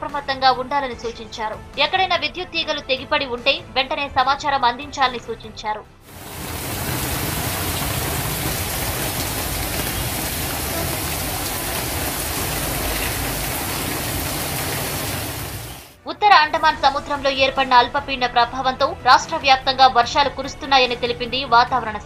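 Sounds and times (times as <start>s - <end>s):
heavy rain pouring on road: 6.1s - 16.0s.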